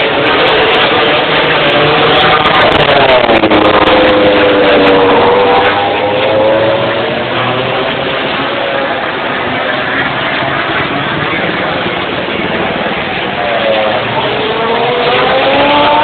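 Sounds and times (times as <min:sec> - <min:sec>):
racing motorcycle engine passing: 0:00.0 - 0:16.0.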